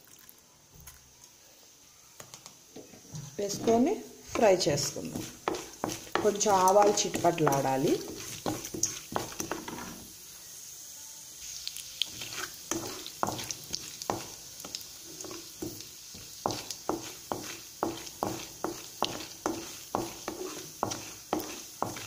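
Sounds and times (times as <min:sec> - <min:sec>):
oil sizzling: 0:02.4 - 0:22.0
seeds popping in hot oil: 0:03.4 - 0:10.1, 0:11.4 - 0:22.0.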